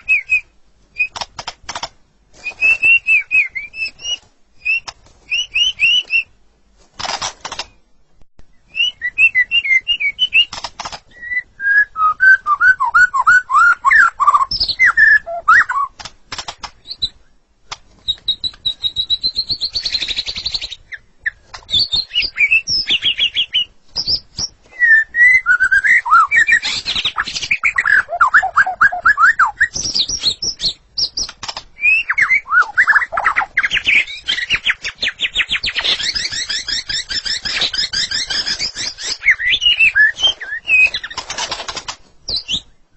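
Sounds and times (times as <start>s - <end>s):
bird singing whistled phrases: 0.0s - 1.2s, 2.4s - 6.3s, 8.6s - 15.9s, 21.7s - 41.2s
sharp bird clicks: 0.0s - 6.3s, 7.0s - 7.8s, 10.1s - 11.2s, 13.6s - 24.6s, 25.6s - 42.8s.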